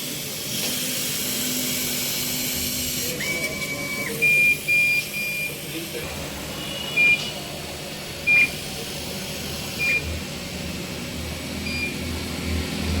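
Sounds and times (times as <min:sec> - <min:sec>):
machine humming: 0:00.0 - 0:13.0
short high electronic beeps: 0:03.2 - 0:05.6, 0:06.6 - 0:07.4, 0:08.2 - 0:08.6, 0:09.8 - 0:10.1, 0:11.6 - 0:12.1.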